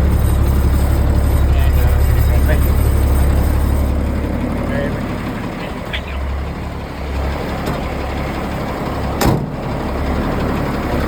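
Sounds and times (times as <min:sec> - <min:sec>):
diesel engine idling: 0:00.0 - 0:11.0
sharp clunk: 0:09.2 - 0:09.6.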